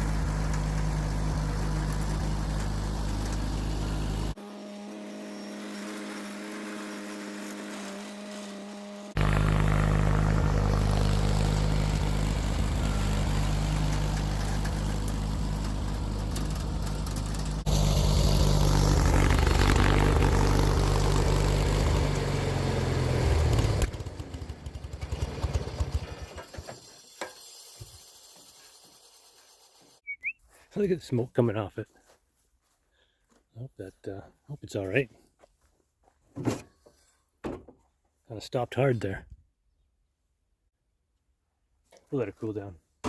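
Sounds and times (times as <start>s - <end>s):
garden tractor engine under load: 0.0s - 30.0s.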